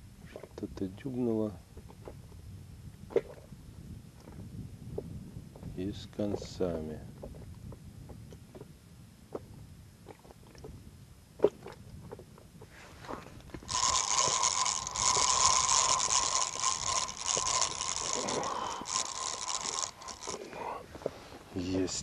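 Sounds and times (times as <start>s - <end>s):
fishing tackle clicks and knocks: 13.4s - 20.6s
fishing reel whirring: 13.5s - 20.9s.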